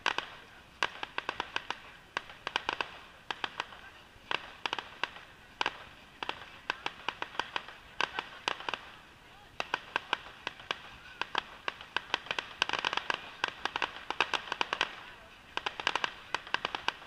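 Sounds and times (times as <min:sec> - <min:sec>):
fireworks cracking and popping: 0:00.0 - 0:17.0.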